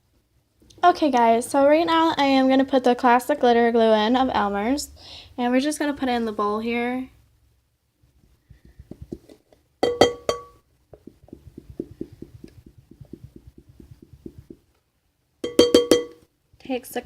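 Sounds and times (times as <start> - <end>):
bottle knocking on bowl: 9.8 - 14.6, 15.4 - 16.2.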